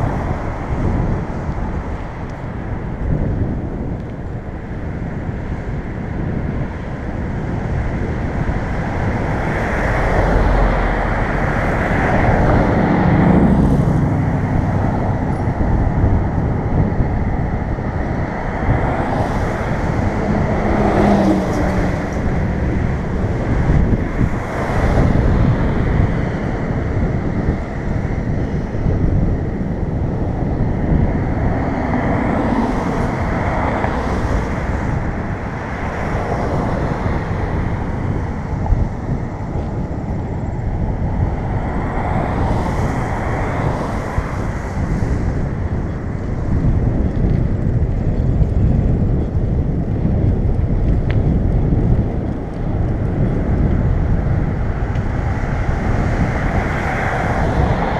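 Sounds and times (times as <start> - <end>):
cars passing: 0.0 - 57.9
road noise rumble: 0.0 - 57.9.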